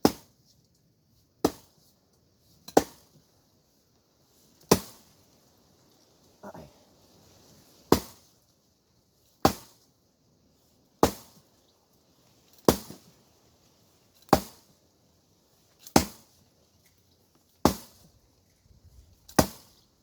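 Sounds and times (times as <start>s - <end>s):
axe chopping hard wood: 0.0s - 0.3s, 1.4s - 1.7s, 2.7s - 3.1s, 4.7s - 5.0s, 7.9s - 8.2s, 9.4s - 9.8s, 11.0s - 11.4s, 12.6s - 13.0s, 14.3s - 14.6s, 15.9s - 16.2s, 17.6s - 18.0s, 19.3s - 19.7s.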